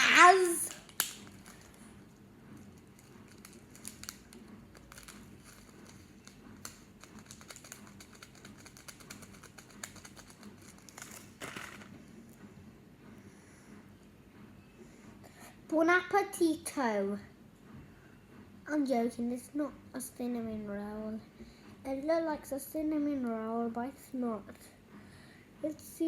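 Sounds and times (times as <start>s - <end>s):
slime crackling and popping: 0.1s - 1.3s.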